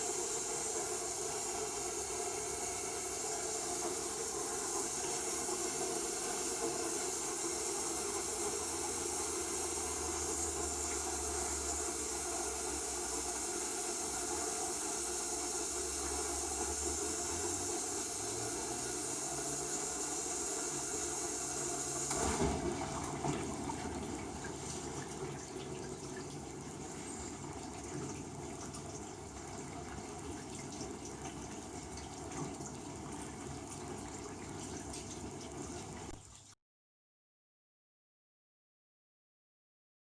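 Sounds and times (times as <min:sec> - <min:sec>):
water spraying in dishwasher: 0:00.0 - 0:28.2
pump humming: 0:00.0 - 0:36.2
water trickling and filling: 0:00.0 - 0:36.6.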